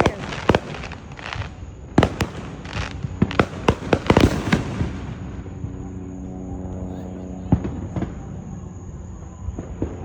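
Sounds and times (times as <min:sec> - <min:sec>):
fireworks bangs and pops: 0:00.0 - 0:05.3.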